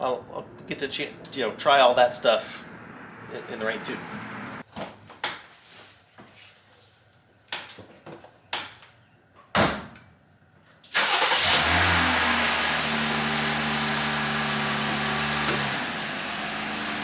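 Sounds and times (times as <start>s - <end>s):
car engine starting and idling: 10.9s - 17.0s.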